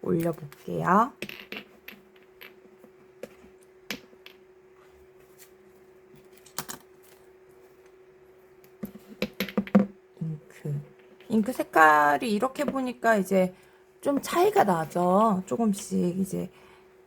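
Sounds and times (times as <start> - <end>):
faint steady hum: 0.0 - 17.0
objects set down on desk: 8.8 - 10.0.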